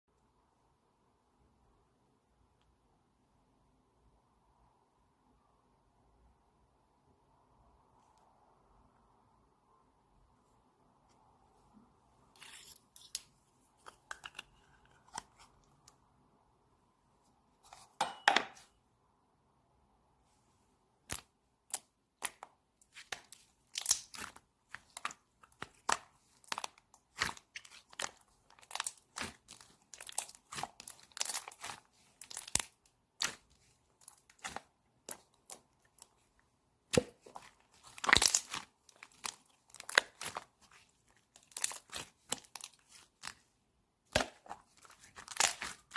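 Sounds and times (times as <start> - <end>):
crinkling and tearing by hand: 21.1 - 43.5, 44.1 - 45.9.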